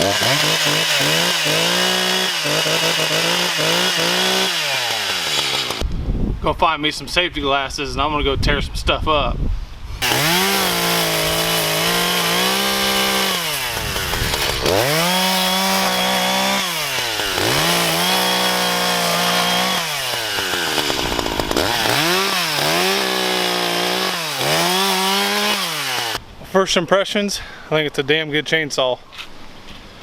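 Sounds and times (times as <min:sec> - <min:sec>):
chainsaw engine revving: 0:00.0 - 0:05.8, 0:10.0 - 0:26.2.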